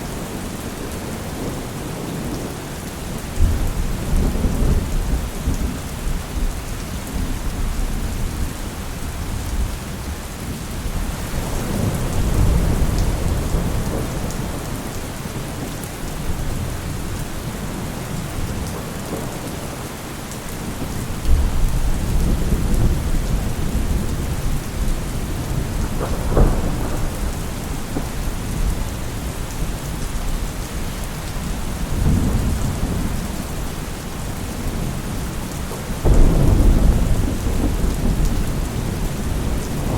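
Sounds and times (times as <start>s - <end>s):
heavy rain: 0.0s - 39.9s
rolling thunder: 11.2s - 17.5s, 20.8s - 30.4s, 31.6s - 39.9s
sharp thunderclap: 21.3s - 28.8s, 36.0s - 39.9s.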